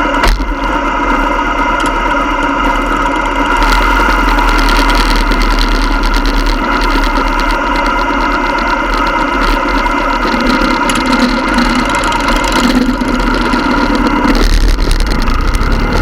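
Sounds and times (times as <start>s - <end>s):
motorcycle engines running: 0.0s - 16.0s.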